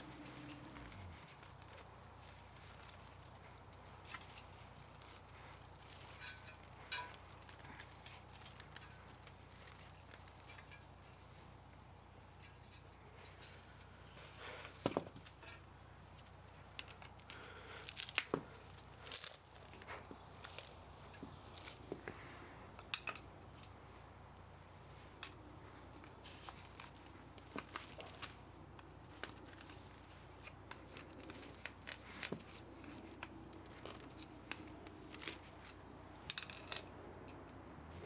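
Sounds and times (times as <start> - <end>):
hand tools clicking and snipping: 0.0 - 11.3, 16.7 - 22.2
faint steady hum: 0.0 - 38.0.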